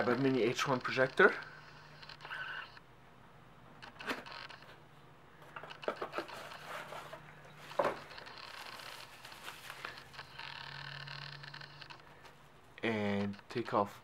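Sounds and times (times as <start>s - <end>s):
parts scraping: 5.4s - 12.5s.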